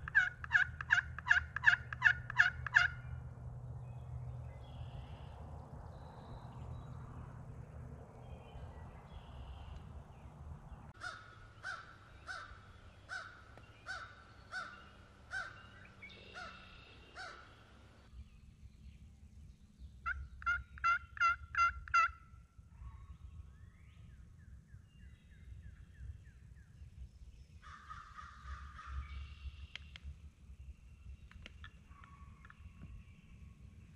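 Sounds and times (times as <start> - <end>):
turkey yelping: 0.0 - 3.1, 11.0 - 15.6, 20.0 - 22.2.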